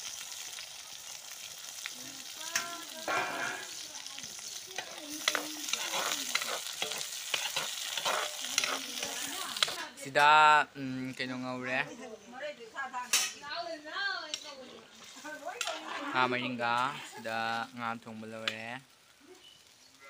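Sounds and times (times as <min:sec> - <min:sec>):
vegetables sizzling in hot oil: 0:00.0 - 0:20.0
spatula scraping a pan: 0:03.0 - 0:09.8, 0:14.3 - 0:17.3.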